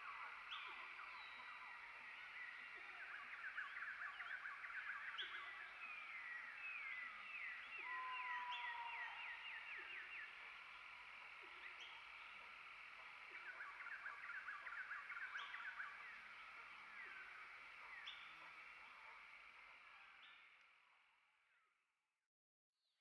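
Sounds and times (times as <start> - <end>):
rapid bird chirps: 0.0 - 21.1
whistled bird note: 0.5 - 10.5.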